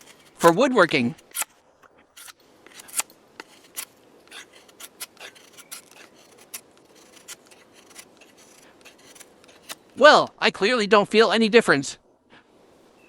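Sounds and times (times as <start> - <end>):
knife shaving wood: 0.0 - 10.0.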